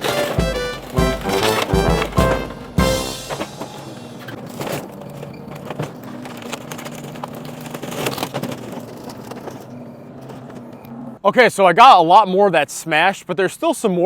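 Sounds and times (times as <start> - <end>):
debris cracking and crunching: 0.0 - 10.8
excavator engine running: 0.0 - 11.2.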